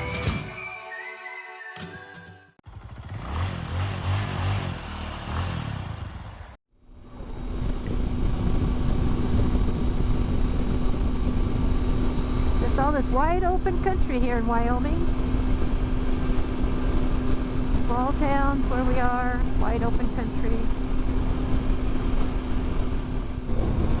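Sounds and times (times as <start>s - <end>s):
background music: 0.0s - 2.6s
motorcycle engine running: 2.6s - 24.0s
wind noise: 7.0s - 24.0s.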